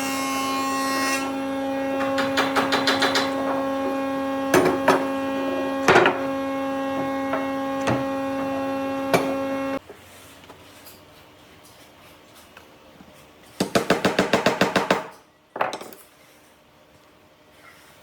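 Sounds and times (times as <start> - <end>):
power tool motor humming: 1.2 - 9.8.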